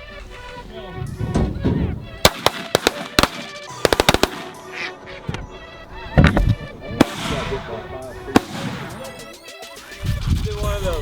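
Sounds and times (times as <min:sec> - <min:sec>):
geese honking: 0:00.0 - 0:10.0
shotgun fire volley: 0:02.2 - 0:04.7, 0:07.0 - 0:09.3.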